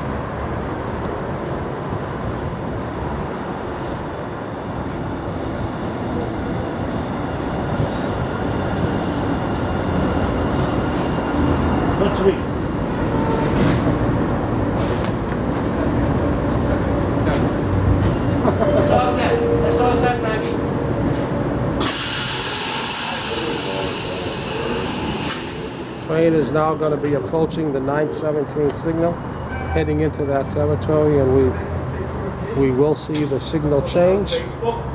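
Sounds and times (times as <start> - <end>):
subway train rumbling: 0.0 - 34.9
steel wheels squealing: 4.4 - 5.2, 7.0 - 14.0, 18.1 - 26.6.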